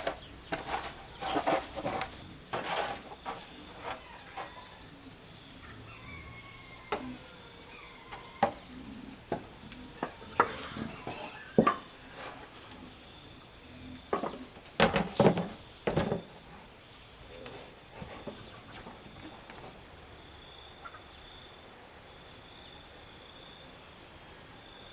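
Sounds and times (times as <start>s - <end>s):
insects chirring: 0.0s - 24.9s.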